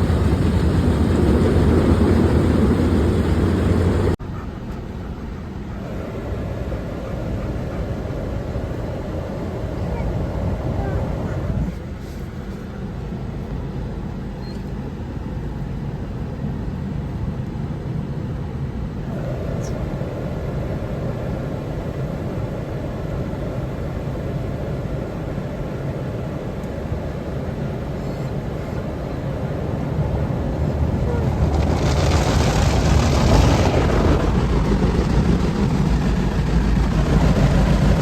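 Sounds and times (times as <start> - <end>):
washing noise: 0.0 - 4.8, 27.9 - 38.0
car wash rumbling: 0.0 - 14.3, 15.0 - 38.0.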